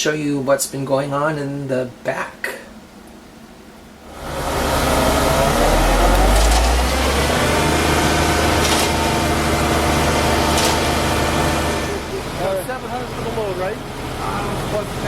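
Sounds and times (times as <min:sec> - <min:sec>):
cement truck engine running: 0:04.1 - 0:15.0.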